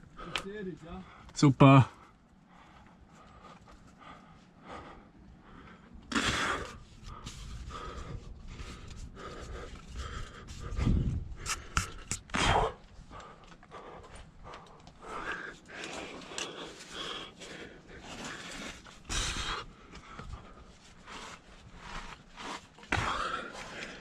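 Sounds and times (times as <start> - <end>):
person breathing hard: 2.0 - 24.0
forceful exhalations: 9.5 - 24.0.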